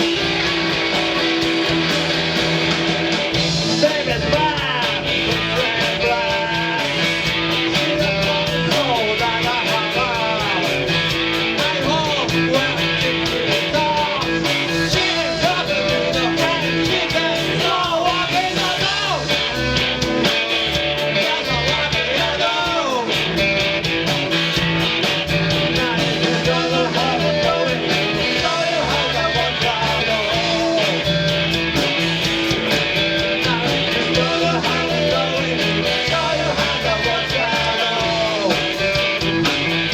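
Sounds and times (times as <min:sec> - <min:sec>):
electric guitar bending notes: 0:00.0 - 0:05.7
bass guitar: 0:00.0 - 0:39.9
drums and cymbals: 0:00.0 - 0:39.9.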